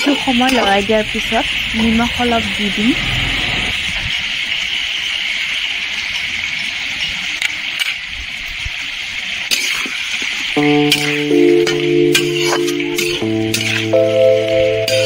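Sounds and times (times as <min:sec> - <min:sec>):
chicken sizzling in oil: 0:00.0 - 0:15.0
background music: 0:10.6 - 0:15.0.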